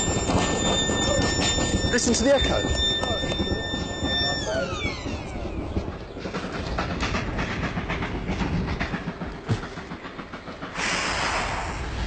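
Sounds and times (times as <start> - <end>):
harsh hissing noise: 10.6 - 12.0.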